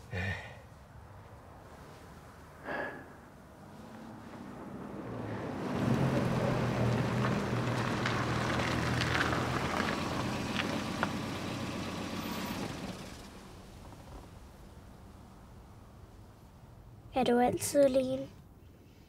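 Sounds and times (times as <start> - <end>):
car engine running slowly: 3.7 - 16.2.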